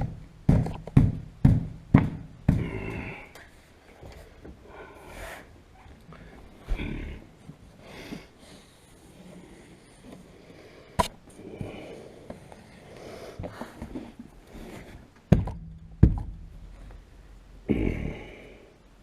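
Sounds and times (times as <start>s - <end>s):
sharp knocks: 0.0s - 2.9s, 15.3s - 16.6s
soft breathing: 2.5s - 15.2s.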